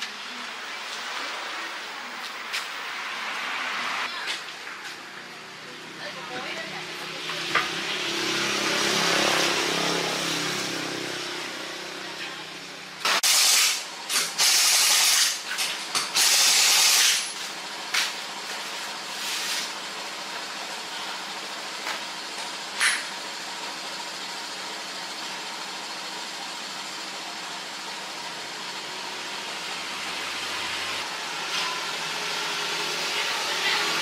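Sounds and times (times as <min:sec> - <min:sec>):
shop background noise: 0:00.0 - 0:34.0
compressed air hissing blasts: 0:13.1 - 0:15.4.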